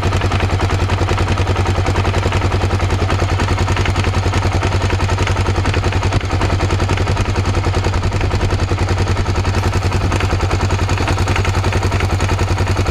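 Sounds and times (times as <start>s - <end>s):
motorcycle engine idling with knock: 0.0s - 12.9s.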